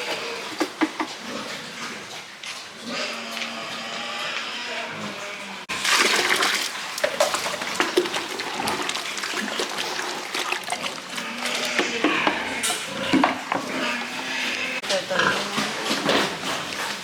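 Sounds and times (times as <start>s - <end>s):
water rushing and splashing: 5.7s - 12.1s.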